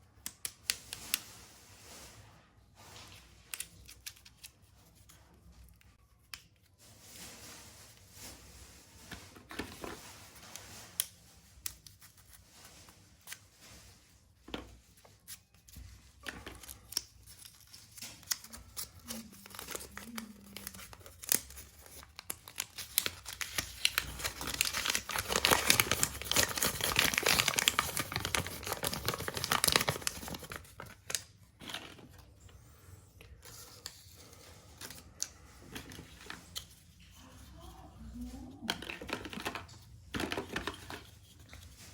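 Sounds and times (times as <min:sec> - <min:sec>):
plastic snack packets crinkling: 0:15.6 - 0:32.4, 0:38.2 - 0:41.9.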